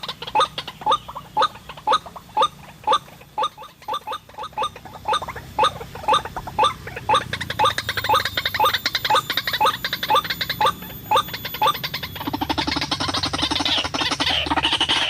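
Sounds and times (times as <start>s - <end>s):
bird calling short rising notes: 0.0s - 15.0s.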